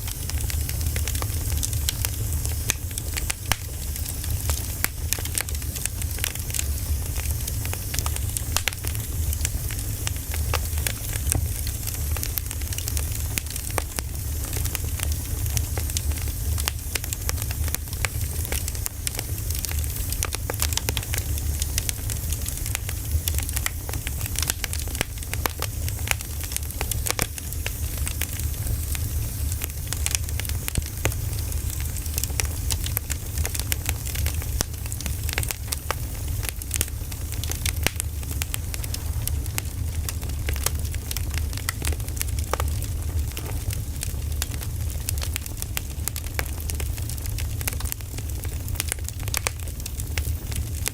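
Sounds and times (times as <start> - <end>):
firewood crackling and popping: 0.0 - 50.9
low rumble: 38.1 - 41.1.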